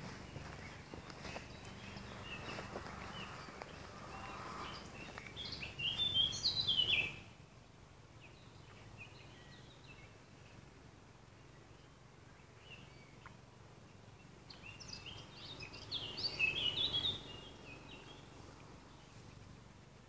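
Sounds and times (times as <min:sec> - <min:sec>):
footsteps on forest path: 0:00.0 - 0:07.2
songbird chirping: 0:00.0 - 0:20.0.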